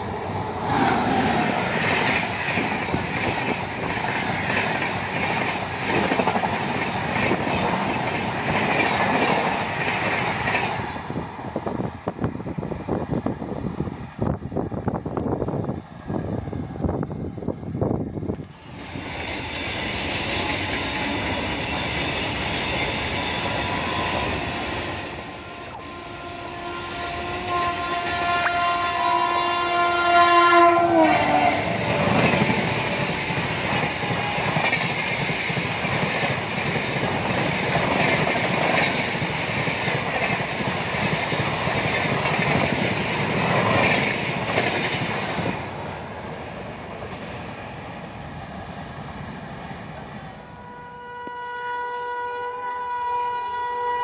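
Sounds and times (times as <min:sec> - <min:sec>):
train coaches clattering on rails: 0:00.0 - 0:11.8, 0:18.4 - 0:28.7, 0:30.9 - 0:47.9
train horn: 0:23.2 - 0:33.0, 0:50.4 - 0:54.0.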